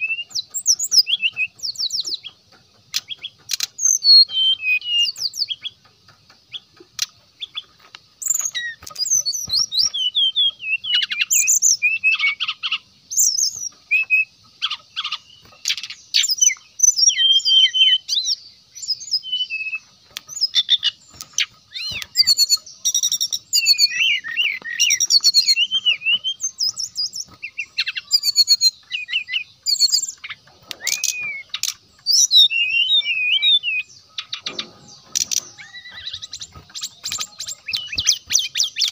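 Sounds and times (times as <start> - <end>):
bird singing chirps and trills: 0.0 - 38.9.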